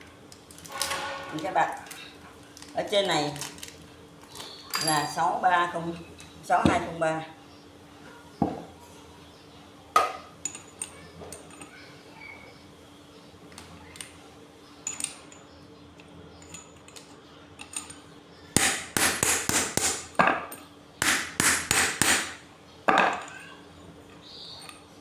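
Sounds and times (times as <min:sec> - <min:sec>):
light metal clinks: 0:14.8 - 0:15.6
hammer striking metal: 0:18.6 - 0:20.2, 0:21.0 - 0:22.4.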